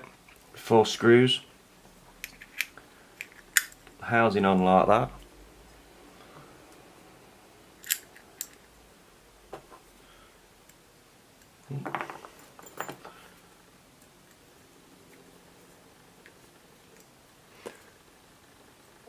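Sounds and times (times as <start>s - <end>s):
small parts clicking: 2.2s - 3.9s, 7.8s - 8.7s.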